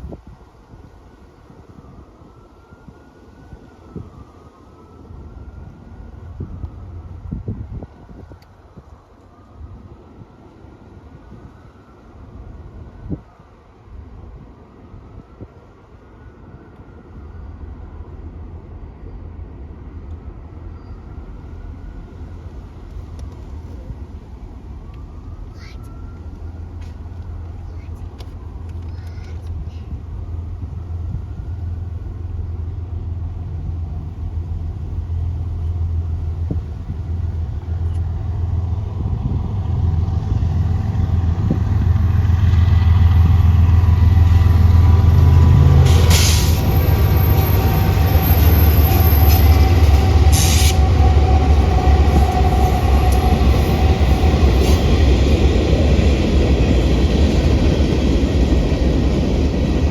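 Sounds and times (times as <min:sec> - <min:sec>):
freight train rumbling on rails: 0:26.4 - 0:59.9.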